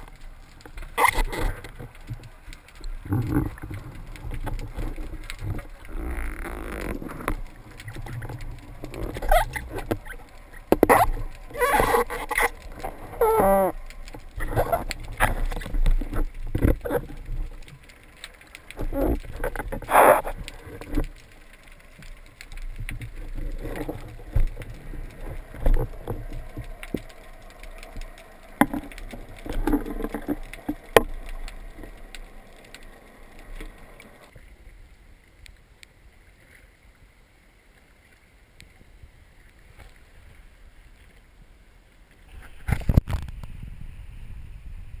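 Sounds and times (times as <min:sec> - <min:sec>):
water sloshing and splashing: 0:00.0 - 0:34.8.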